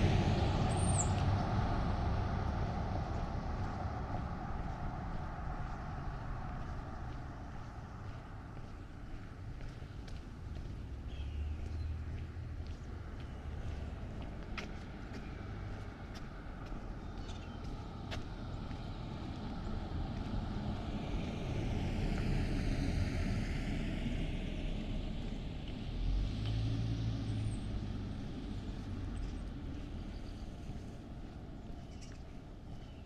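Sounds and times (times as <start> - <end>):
car driving past: 0.0 - 8.8, 10.6 - 32.3
low engine hum: 0.0 - 33.0.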